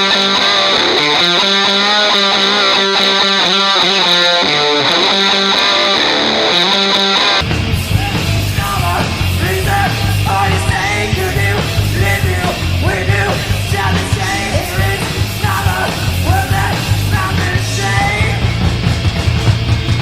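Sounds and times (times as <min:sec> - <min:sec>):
distorted electric guitar: 0:00.0 - 0:20.0
bass and drums: 0:07.4 - 0:20.0
person shouting vocals: 0:07.9 - 0:18.5.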